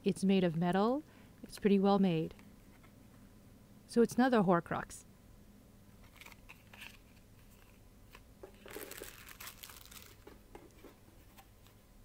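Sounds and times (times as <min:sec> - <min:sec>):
packaging crinkling: 0:06.0 - 0:10.8.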